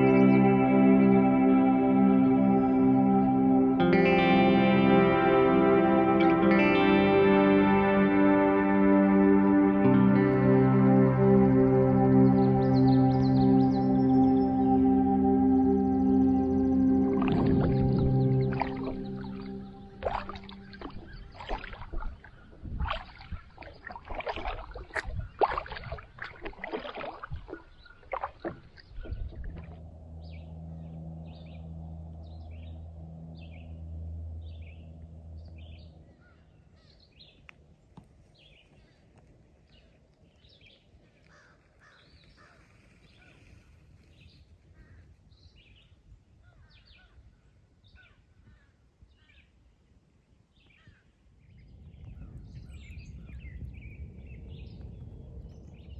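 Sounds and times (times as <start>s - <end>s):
low steady hum: 0.0s - 38.3s
birds calling: 12.0s - 37.5s.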